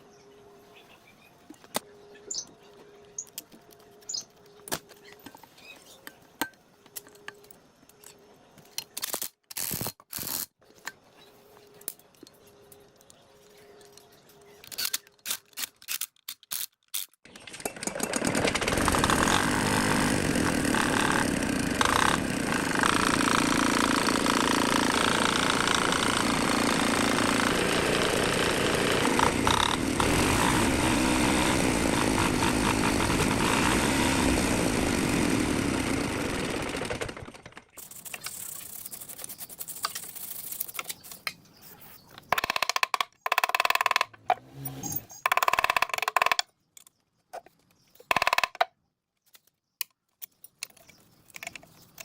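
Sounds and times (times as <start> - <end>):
generator engine running: 17.8 - 37.6.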